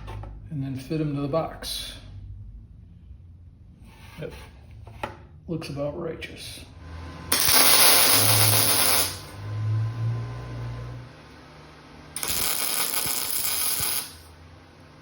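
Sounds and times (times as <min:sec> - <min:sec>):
low hum: 0:06.6 - 0:15.0
welding crackle on sheet metal: 0:07.3 - 0:09.4, 0:12.2 - 0:14.3.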